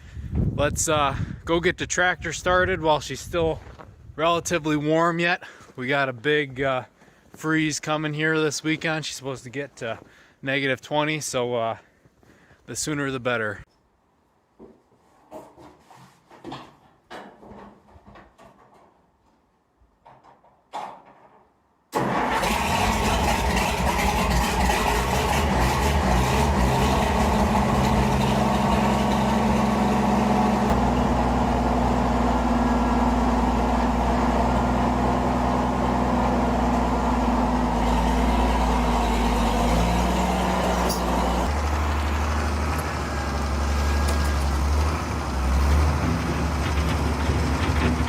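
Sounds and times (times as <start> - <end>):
tractor engine starting and running: 21.9 - 48.0.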